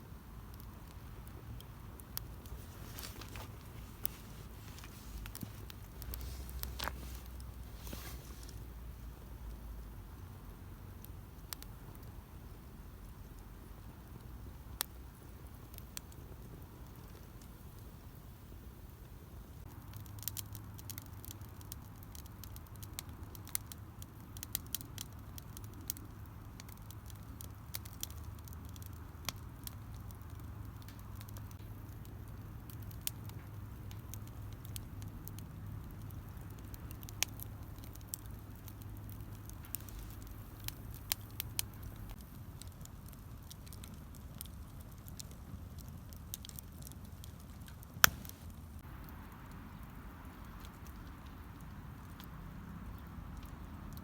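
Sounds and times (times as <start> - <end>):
low steady hum: 0.0 - 19.8
campfire crackling: 0.0 - 54.0
wood popping and snapping: 48.0 - 48.4.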